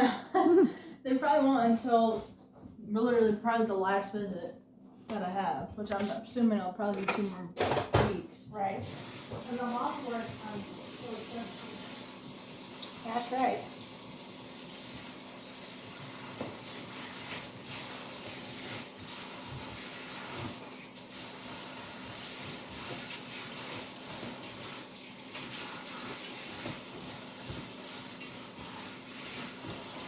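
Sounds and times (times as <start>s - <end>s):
tap running into sink: 16.2s - 18.4s.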